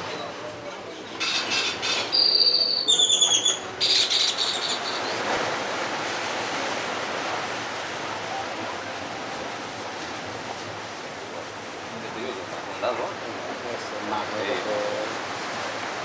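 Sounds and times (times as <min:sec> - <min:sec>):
ocean surf rushing: 0:00.0 - 0:16.0
birds calling shrilly: 0:01.2 - 0:05.2.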